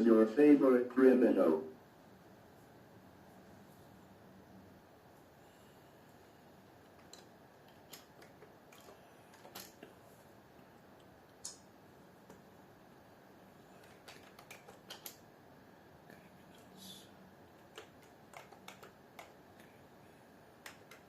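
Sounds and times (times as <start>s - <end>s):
low steady hiss: 0.0s - 21.0s
keyboard typing clicks: 13.8s - 15.2s, 17.6s - 19.7s, 20.6s - 21.0s.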